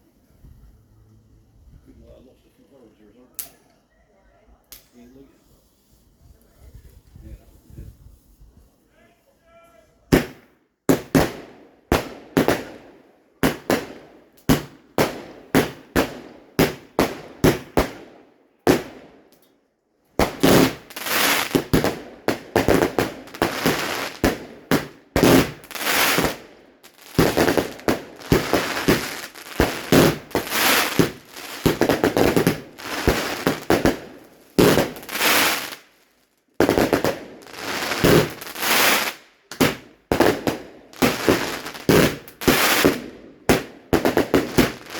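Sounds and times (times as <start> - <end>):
fireworks bangs and crackling: 10.1 - 19.4, 20.2 - 44.9.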